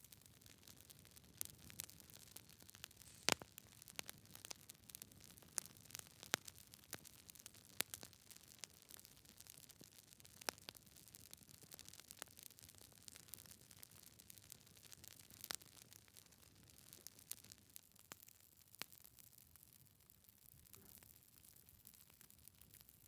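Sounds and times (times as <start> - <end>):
wood fire crackling: 0.0 - 19.7.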